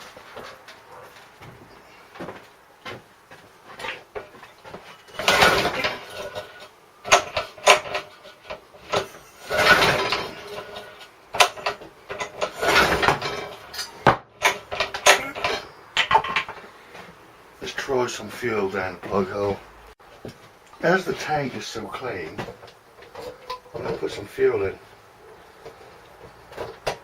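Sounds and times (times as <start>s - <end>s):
clicks and knocks: 0.0s - 17.2s
recoil starter pulls: 3.8s - 19.6s.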